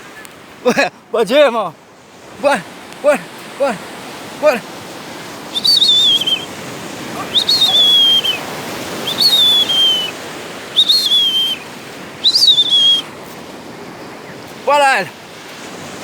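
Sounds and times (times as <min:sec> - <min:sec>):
surf rushing: 0:00.0 - 0:16.0
person whistling: 0:05.5 - 0:06.5, 0:07.2 - 0:13.1.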